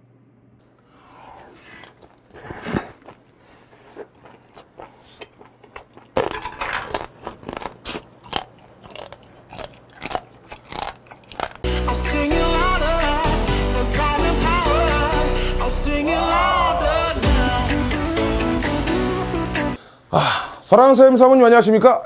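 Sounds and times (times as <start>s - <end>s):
person chewing: 0.8s - 11.7s.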